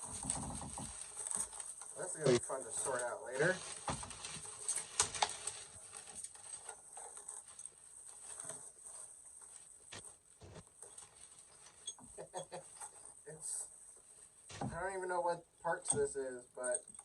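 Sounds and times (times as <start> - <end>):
clicks clinks and rustling: 15.8 - 17.0.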